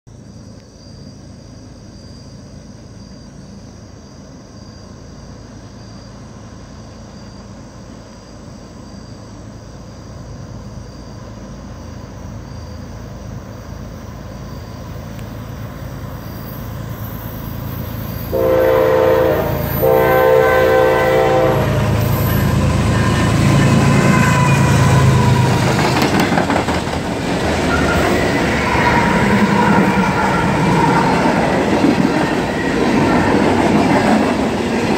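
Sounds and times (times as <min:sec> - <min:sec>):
diesel freight train rumble: 0:01.1 - 0:34.9
locomotive horn blasts: 0:18.3 - 0:25.5
wheels clicking over rail: 0:25.4 - 0:28.1.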